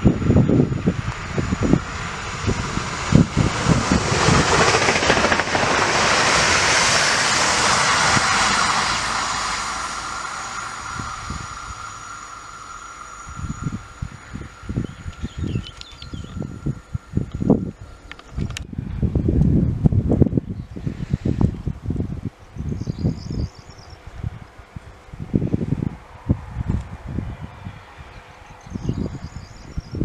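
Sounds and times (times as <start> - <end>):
electric train passing: 0.0 - 20.0, 23.3 - 30.0
wind buffeting microphone: 0.0 - 30.0.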